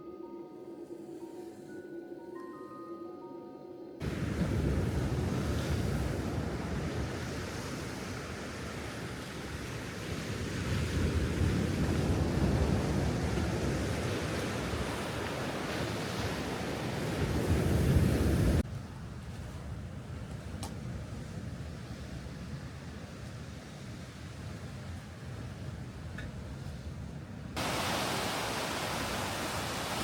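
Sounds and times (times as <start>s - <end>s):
sea waves washing ashore: 4.0s - 30.0s
wind noise on microphone: 4.0s - 30.0s.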